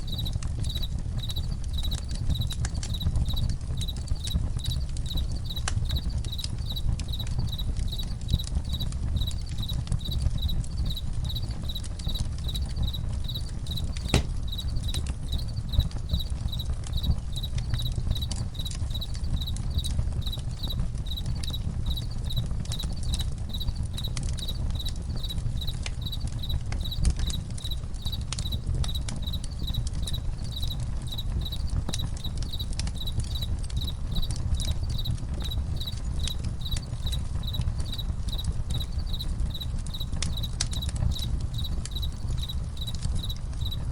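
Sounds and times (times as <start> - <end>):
campfire crackling: 0.0 - 43.9
crickets chirping: 0.0 - 43.9.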